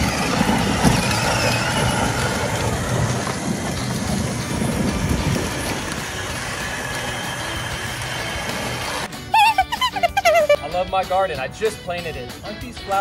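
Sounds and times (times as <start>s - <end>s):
plastic wheels rumbling over ground: 0.0s - 9.1s.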